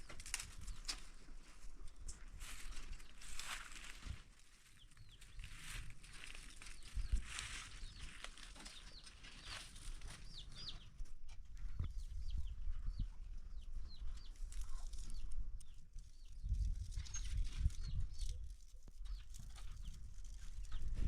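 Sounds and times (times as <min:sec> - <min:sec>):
birds chirping: 0:04.6 - 0:11.1, 0:11.7 - 0:18.4.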